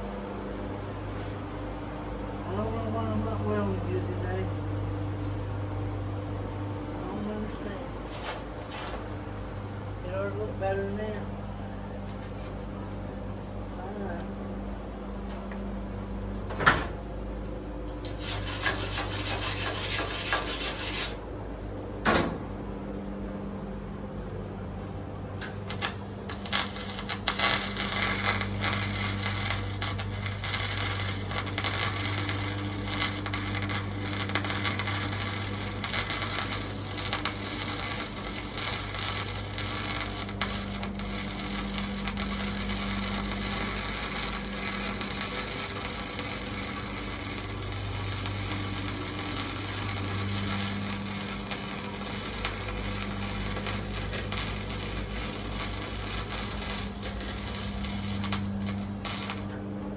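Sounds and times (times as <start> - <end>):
steady hum: 0.0 - 59.9
welding arc crackling: 18.0 - 21.2, 25.4 - 59.7.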